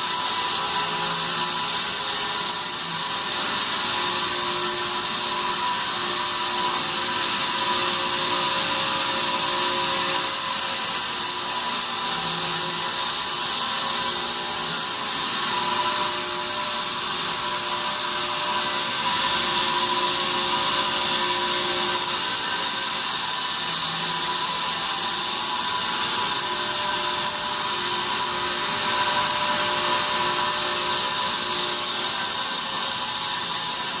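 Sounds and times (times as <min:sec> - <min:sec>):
band saw cutting wood: 0:00.0 - 0:34.0.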